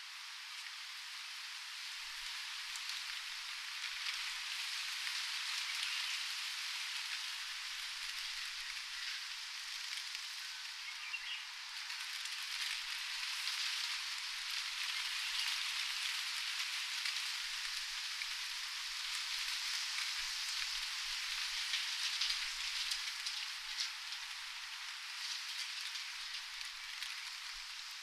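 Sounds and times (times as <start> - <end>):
steady rain falling: 0.1 - 28.0.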